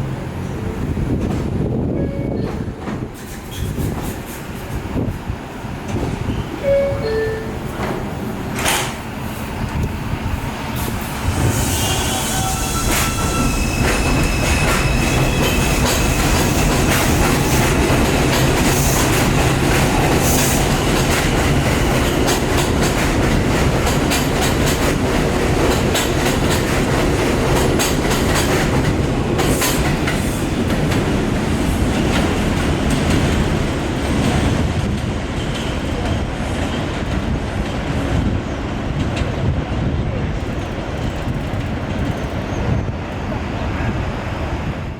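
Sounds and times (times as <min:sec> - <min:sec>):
subway train running on rails: 0:00.0 - 0:44.9
wheel squeal: 0:11.5 - 0:16.6
wheels clacking over rail joints: 0:12.8 - 0:38.3.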